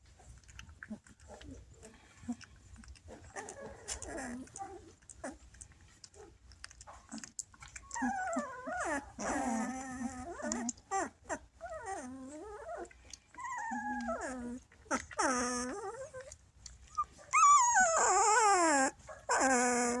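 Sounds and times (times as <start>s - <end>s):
dog whining and howling: 7.8s - 20.0s.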